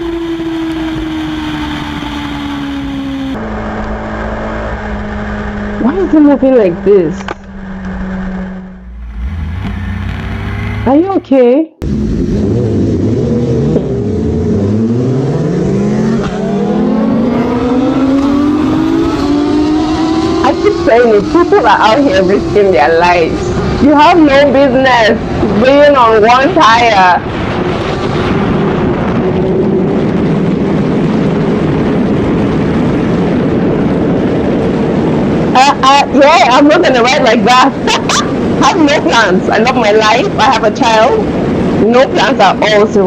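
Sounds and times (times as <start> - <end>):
motorcycle engine accelerating: 0.0 - 42.9
road and wind noise: 0.0 - 43.0.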